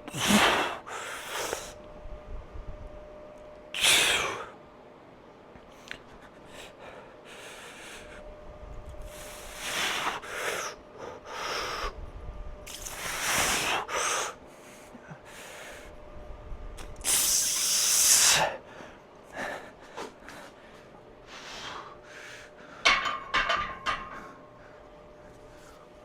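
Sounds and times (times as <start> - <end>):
man breathing hard: 0.0 - 1.8, 6.0 - 8.2, 9.0 - 12.0, 12.7 - 16.0, 17.0 - 23.0.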